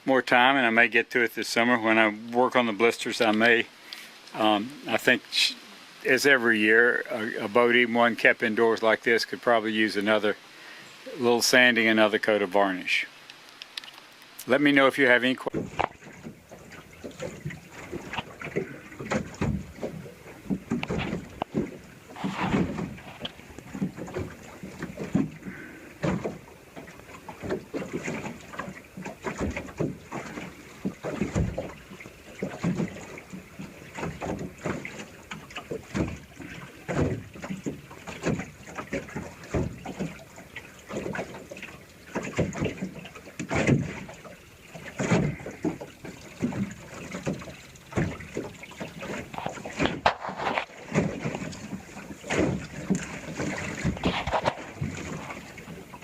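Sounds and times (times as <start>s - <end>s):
water rushing along hull: 0.0s - 56.0s.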